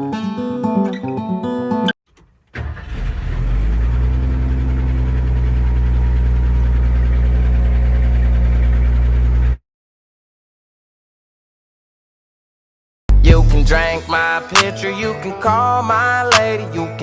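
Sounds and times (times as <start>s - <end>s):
truck engine starting and idling: 2.1s - 9.6s.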